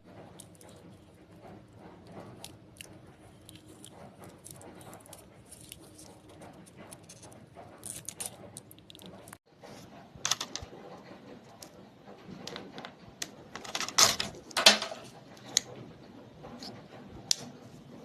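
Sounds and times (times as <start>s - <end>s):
small hard objects clicking and rattling: 2.0s - 9.4s, 10.2s - 10.7s.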